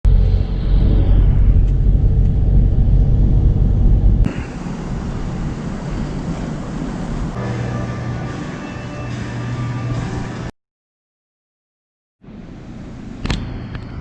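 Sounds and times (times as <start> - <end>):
low vehicle rumble: 0.0 - 8.3.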